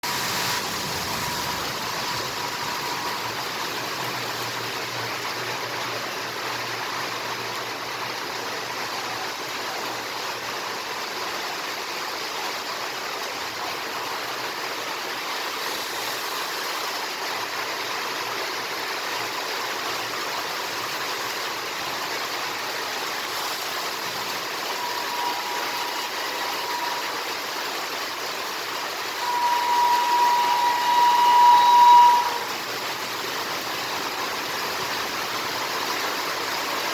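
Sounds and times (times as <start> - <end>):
heavy rain hissing: 0.0 - 36.9
train horn: 1.2 - 3.7, 24.6 - 27.4, 29.2 - 32.6.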